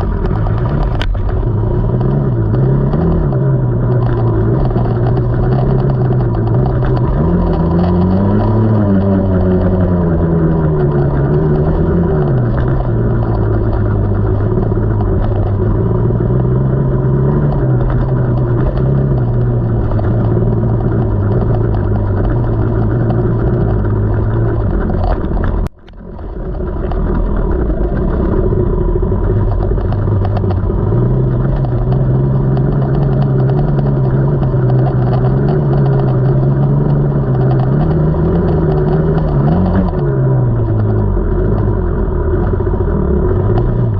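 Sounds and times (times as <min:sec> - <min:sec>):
dirt bike engine revving: 0:00.0 - 0:25.7.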